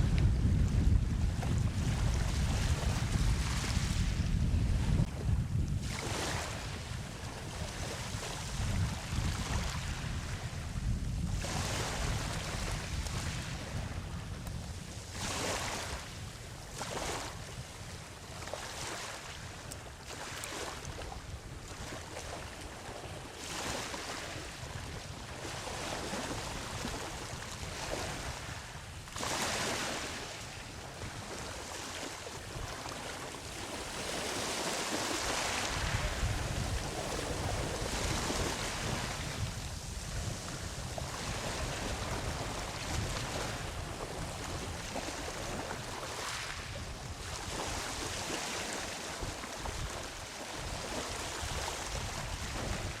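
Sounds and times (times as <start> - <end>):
ocean surf breaking on beach: 20.2 - 53.0.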